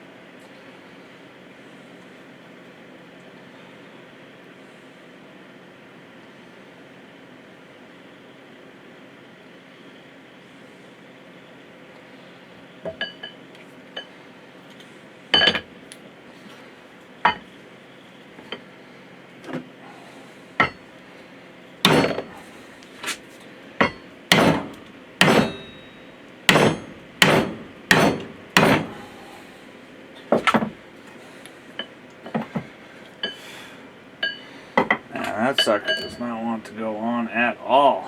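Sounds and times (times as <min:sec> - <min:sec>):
hammer striking metal: 0:20.6 - 0:20.8, 0:21.9 - 0:22.4, 0:23.8 - 0:29.3, 0:35.6 - 0:36.4.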